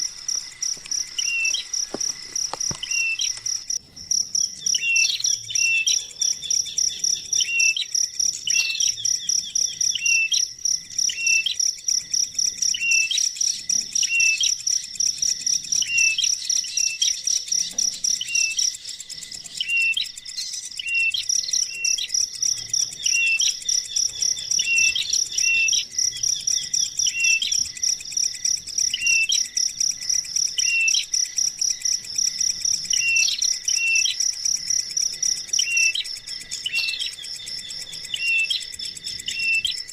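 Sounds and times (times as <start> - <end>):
pulsing insect trill: 0.0 - 39.9.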